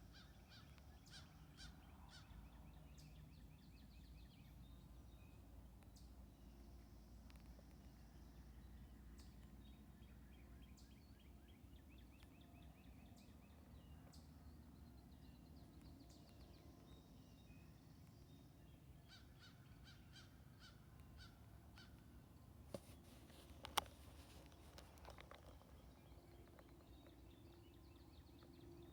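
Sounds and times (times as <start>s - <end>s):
birds chittering and calling: 22.8s - 28.9s.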